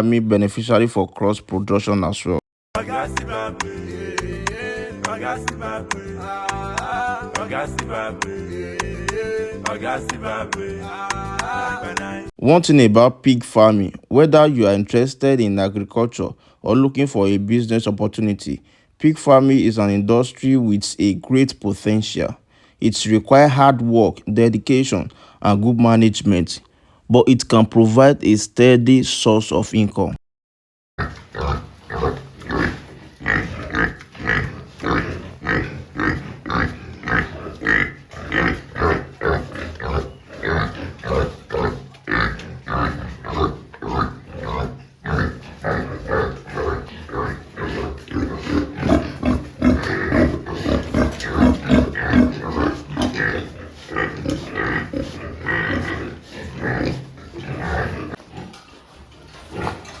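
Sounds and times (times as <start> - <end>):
pigs grunting: 31.0 - 60.0.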